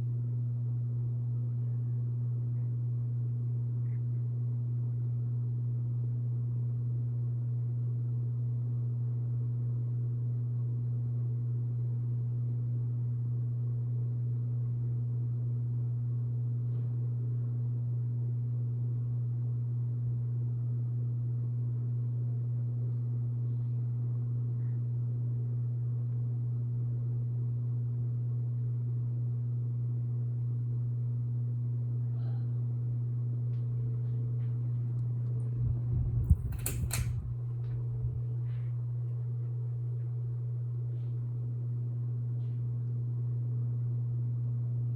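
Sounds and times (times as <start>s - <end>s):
ceiling fan motor humming: 31.4s - 44.9s.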